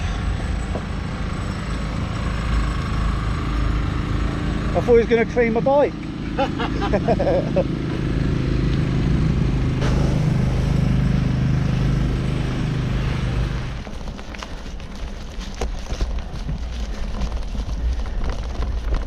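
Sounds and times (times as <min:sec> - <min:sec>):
diesel engine droning: 0:00.0 - 0:19.0
rustling: 0:13.6 - 0:19.0.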